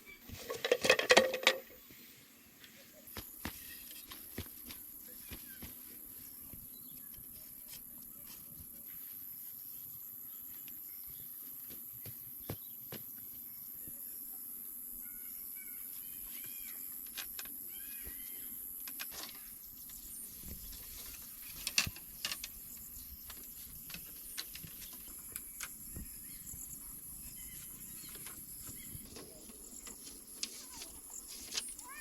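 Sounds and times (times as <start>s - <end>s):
insects trilling: 12.0s - 32.0s
bird chirps: 19.2s - 32.0s.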